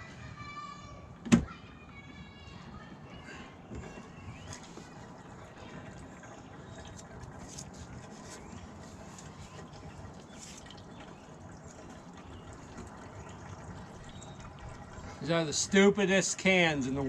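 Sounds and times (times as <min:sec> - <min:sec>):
fuel gurgling into tank: 0:03.6 - 0:17.0
clicks and drips: 0:03.7 - 0:15.7.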